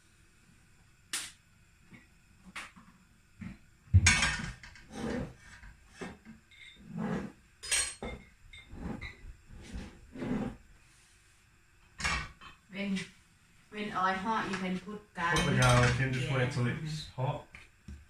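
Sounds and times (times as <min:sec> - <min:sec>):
kitchen utensils and dishes clinking: 0:07.6 - 0:09.1, 0:15.3 - 0:16.4.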